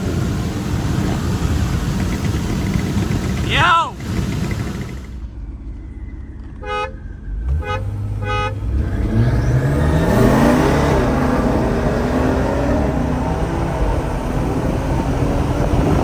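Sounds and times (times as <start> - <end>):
car engine at full throttle: 0.0 - 16.0
car horn beeping: 6.6 - 9.0.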